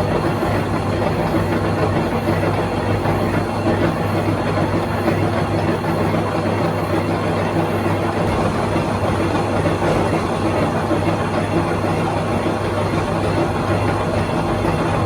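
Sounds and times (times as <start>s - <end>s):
machine humming and whirring: 0.0s - 15.0s.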